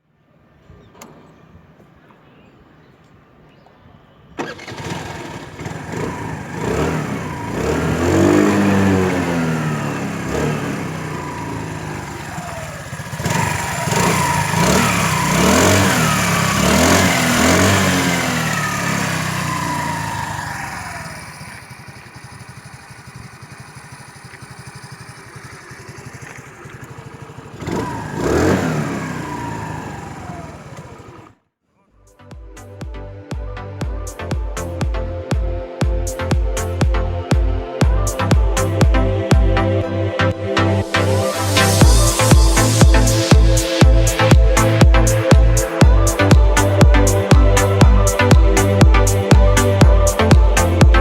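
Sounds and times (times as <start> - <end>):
scooter engine revving: 4.4 - 31.5, 40.5 - 51.0.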